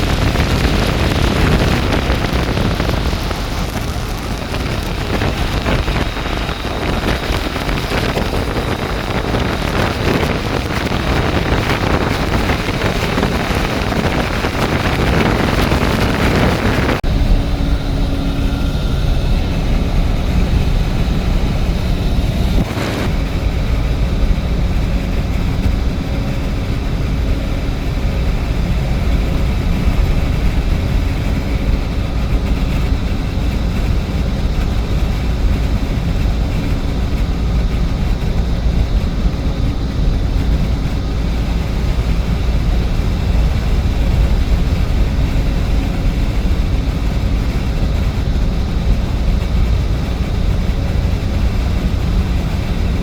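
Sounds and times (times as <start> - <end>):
rain: 0.0 - 17.0
low rumble: 0.0 - 53.0
wind: 0.0 - 53.0.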